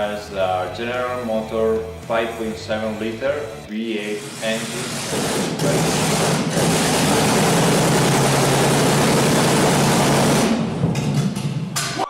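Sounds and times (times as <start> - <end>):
motorcycle engine running: 5.0 - 11.4.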